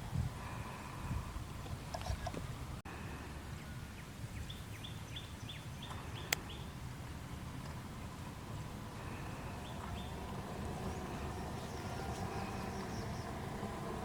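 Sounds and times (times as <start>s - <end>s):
low outdoor rumble: 5.3s - 14.0s.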